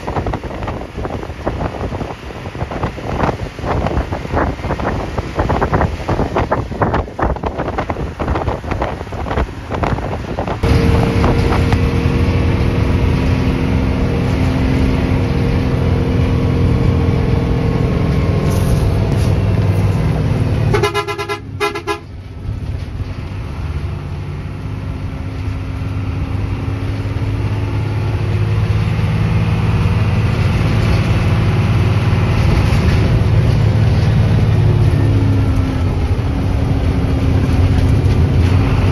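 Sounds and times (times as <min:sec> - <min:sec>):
bus engine drone: 0:00.0 - 0:38.9
rough buffeting noise: 0:00.0 - 0:38.9
horn short blasts: 0:20.6 - 0:22.1.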